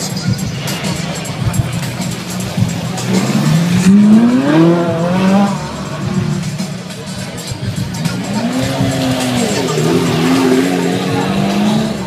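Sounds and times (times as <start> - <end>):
crowd noise: 0.0 - 12.0
sports car engine revving: 0.0 - 12.0.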